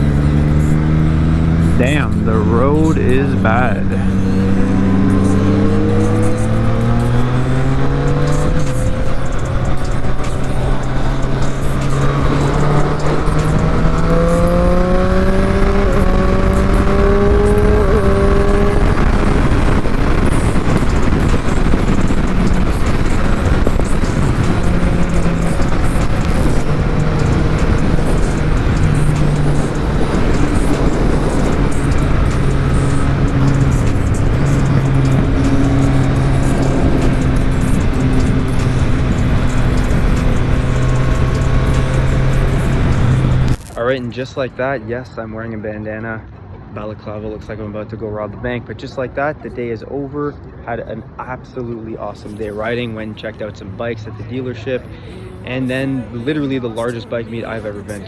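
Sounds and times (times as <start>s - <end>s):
motorcycle engine accelerating: 0.0s - 44.5s
wind noise: 3.2s - 44.2s.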